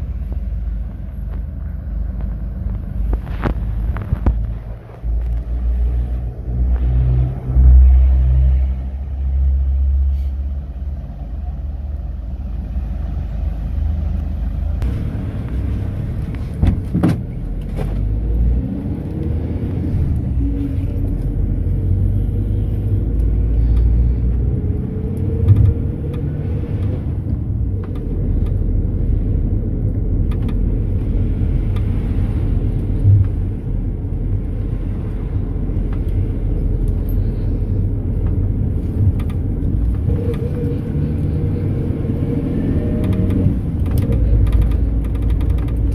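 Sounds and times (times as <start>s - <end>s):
minibus engine and road rumble: 0.0s - 45.9s
body knocks and rattles: 16.2s - 18.0s, 43.0s - 45.9s
engine revving up: 38.8s - 45.9s.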